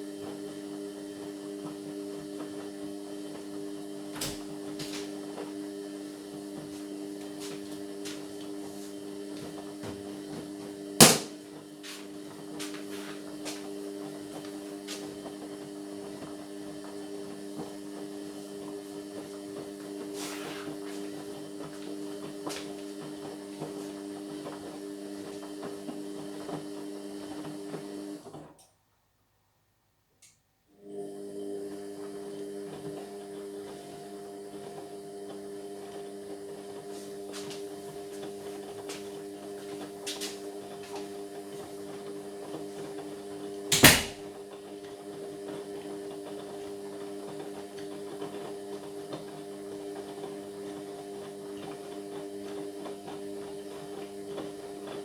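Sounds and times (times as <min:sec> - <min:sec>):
washing machine motor hum: 0:00.0 - 0:28.5, 0:30.8 - 0:55.0
washing machine knock: 0:11.0 - 0:11.4, 0:43.7 - 0:44.3
washing machine clicks: 0:43.7 - 0:44.3.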